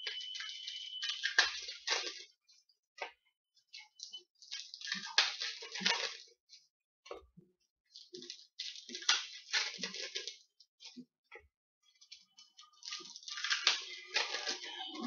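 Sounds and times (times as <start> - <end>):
card packs crinkling and rustling: 0.0 - 2.4, 3.8 - 6.4, 7.9 - 11.0, 11.9 - 15.0.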